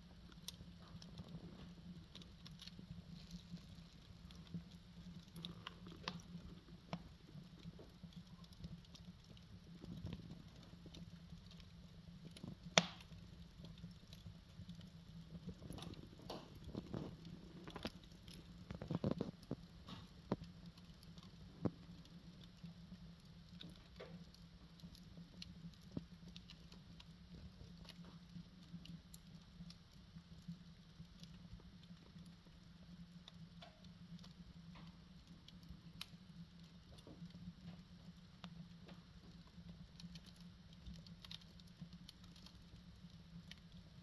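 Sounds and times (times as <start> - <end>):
firewood crackling and popping: 0.0 - 44.0.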